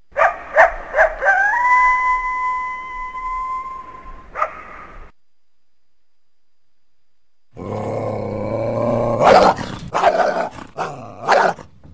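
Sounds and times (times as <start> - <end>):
coyote yipping: 0.2 - 5.1
coyote howling: 0.8 - 5.1.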